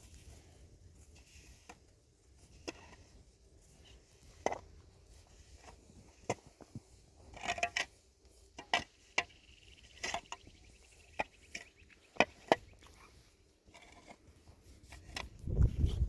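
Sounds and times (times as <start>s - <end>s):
sharp knocks and scrapes: 3.8s - 10.5s, 11.1s - 16.0s
wind rumble on microphone: 15.0s - 16.0s.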